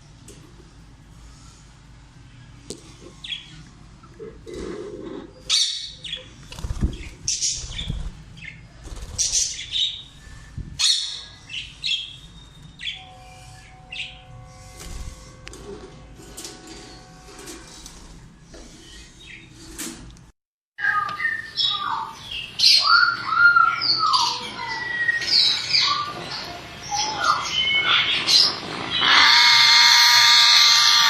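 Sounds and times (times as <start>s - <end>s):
parrots chirping: 26.9s - 31.0s
parrots squawking harshly: 27.9s - 31.0s.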